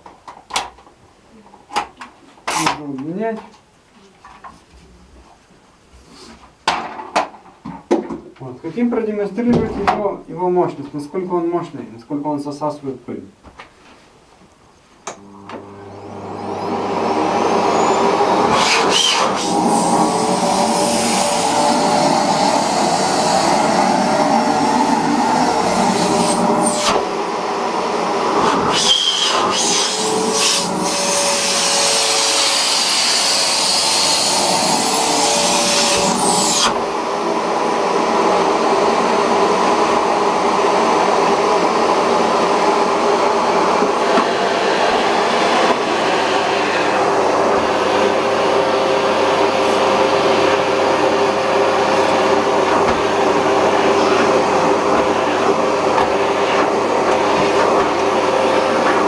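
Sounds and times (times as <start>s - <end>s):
vacuum cleaner motor whine: 15.1s - 59.0s
suction hiss: 16.3s - 27.1s.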